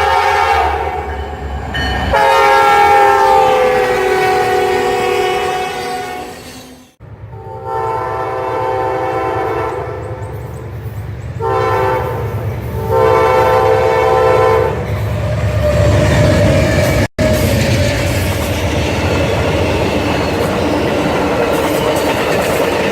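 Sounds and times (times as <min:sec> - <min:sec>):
locomotive air horn blasts: 0:00.0 - 0:01.1, 0:02.1 - 0:06.8, 0:07.4 - 0:10.1, 0:11.4 - 0:14.9
low rumble of train: 0:00.0 - 0:22.9.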